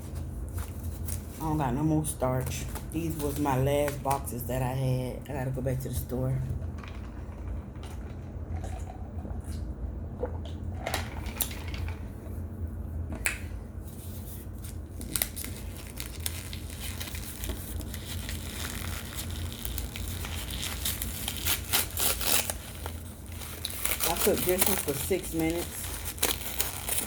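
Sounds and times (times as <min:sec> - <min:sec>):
dry crinkling and crushing: 0:14.6 - 0:27.0.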